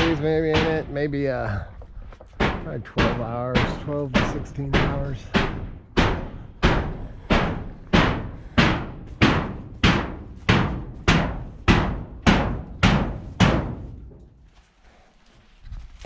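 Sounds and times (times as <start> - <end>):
hammer blows ringing: 0.0 - 1.2, 2.4 - 14.0.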